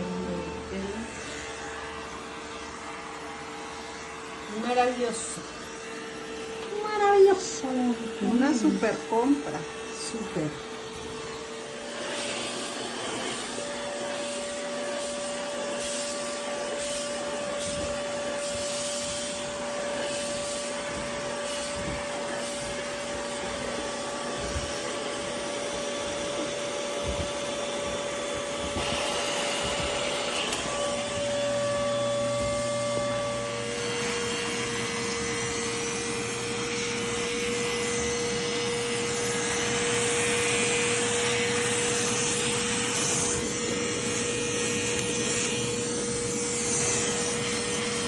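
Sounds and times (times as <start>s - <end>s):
vacuum motor whine: 0.0s - 48.0s
rushing suction air: 11.3s - 26.5s.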